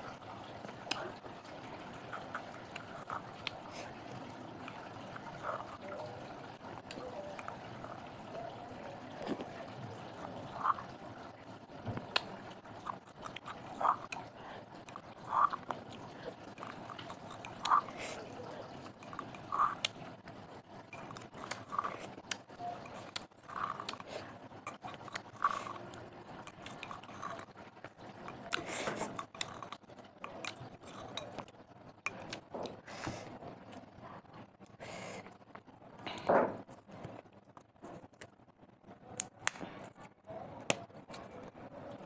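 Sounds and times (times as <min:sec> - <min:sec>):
person chewing crunchy snacks: 0:12.1 - 0:20.3, 0:21.0 - 0:27.5, 0:28.3 - 0:29.8.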